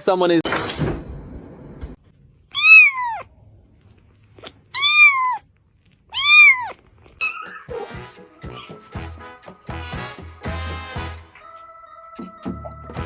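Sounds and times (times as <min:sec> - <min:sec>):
cat meowing: 0:02.5 - 0:03.3, 0:04.7 - 0:05.4, 0:06.1 - 0:06.8.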